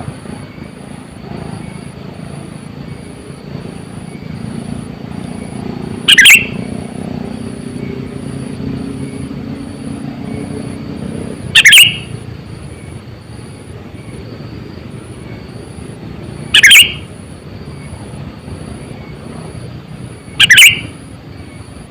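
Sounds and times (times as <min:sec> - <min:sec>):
bird calls: 0:05.2 - 0:06.9, 0:11.5 - 0:13.0, 0:16.4 - 0:21.9.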